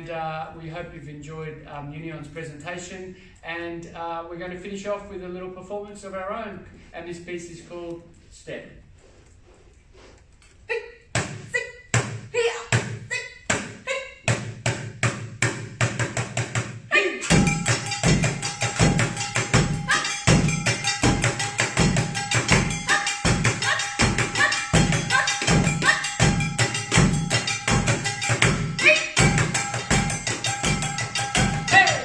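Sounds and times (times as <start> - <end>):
fast driving drum rhythm: 14.4 - 32.0
steady ringing tone: 17.2 - 32.0.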